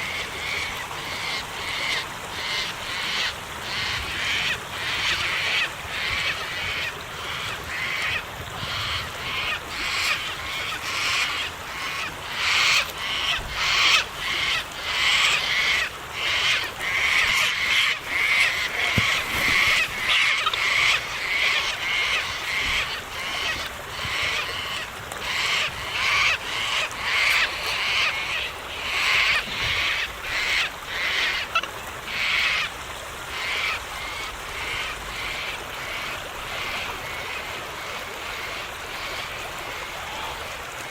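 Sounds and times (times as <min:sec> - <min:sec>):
parrots calling: 0:00.4 - 0:32.7.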